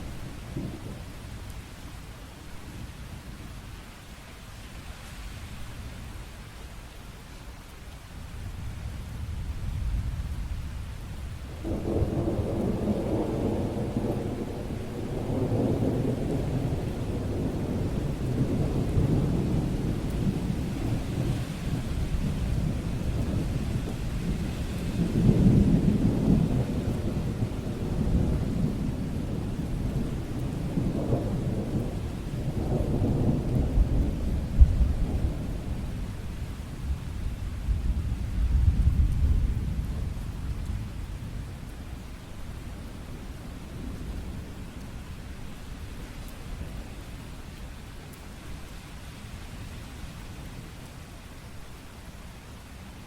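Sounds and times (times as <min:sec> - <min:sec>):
steady rain: 0:00.0 - 0:53.0
rolling thunder: 0:08.6 - 0:45.9.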